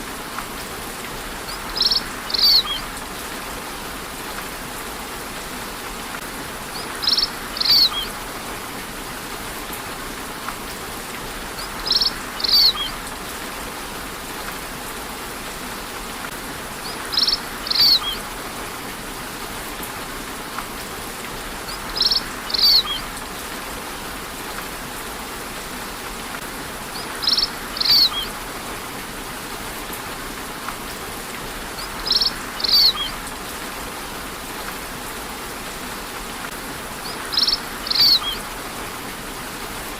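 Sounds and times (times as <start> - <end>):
rain hiss: 0.0 - 39.9
bird double chirp: 37.4 - 38.4.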